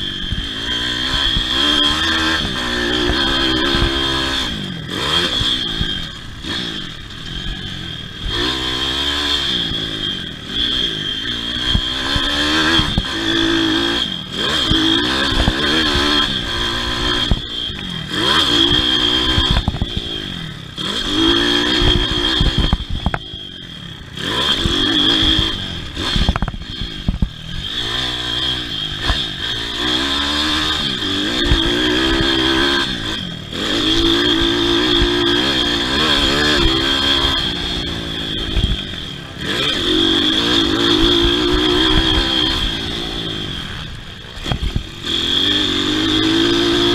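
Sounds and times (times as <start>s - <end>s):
motorbike engines revving: 0.0s - 46.9s.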